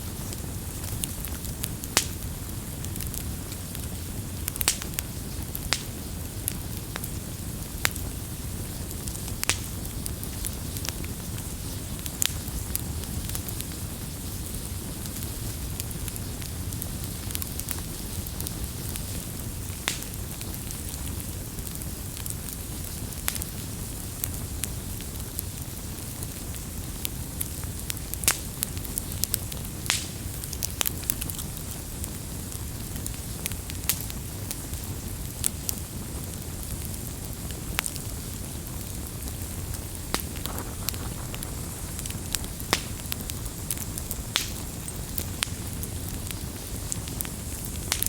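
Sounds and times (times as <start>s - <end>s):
campfire flames rushing: 0.0s - 48.0s
fire crackles and pops: 0.0s - 48.0s.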